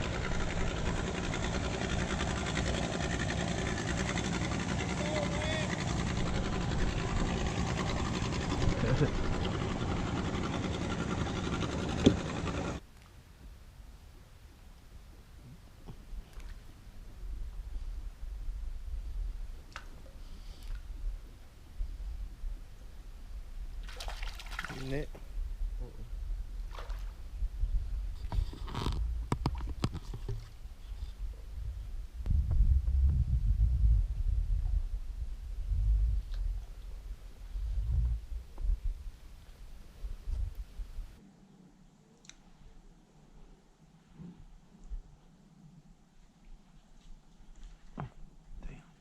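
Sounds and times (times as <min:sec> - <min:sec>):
boat motor running: 0:00.0 - 0:12.8
steady low rumble: 0:00.0 - 0:12.8, 0:13.5 - 0:23.9, 0:25.0 - 0:29.8, 0:30.4 - 0:42.0
sharp knocks in a boat: 0:11.8 - 0:12.4.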